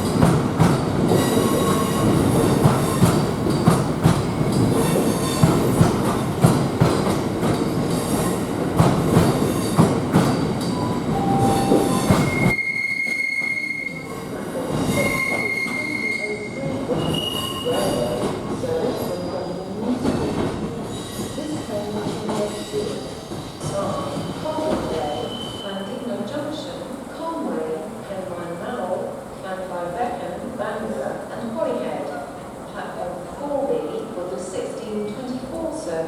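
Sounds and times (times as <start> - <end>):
train wagons rattling on track: 0.0 - 12.6, 13.5 - 26.8.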